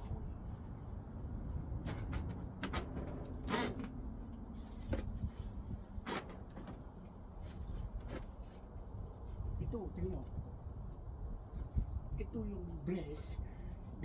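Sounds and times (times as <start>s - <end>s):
steady low rumble: 0.0s - 6.0s.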